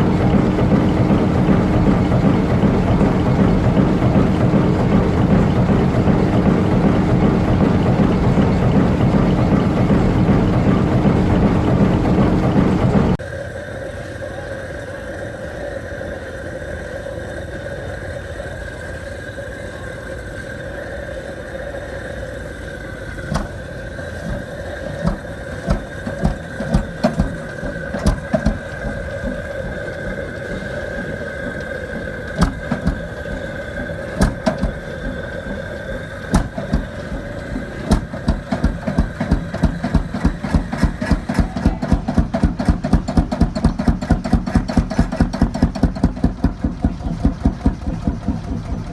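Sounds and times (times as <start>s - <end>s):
engine firing with bangs: 0.0s - 13.2s, 23.2s - 48.9s.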